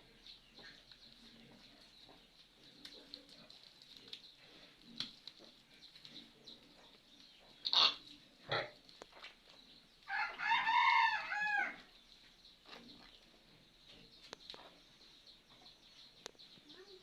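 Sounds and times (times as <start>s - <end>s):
rooster crowing: 10.1s - 11.8s.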